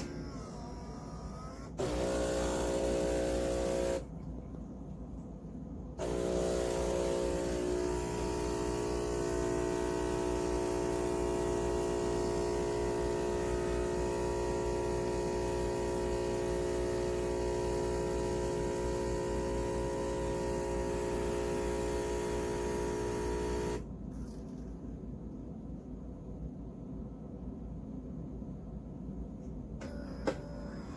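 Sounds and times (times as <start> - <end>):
espresso machine humming: 1.7 - 4.1, 6.0 - 23.9.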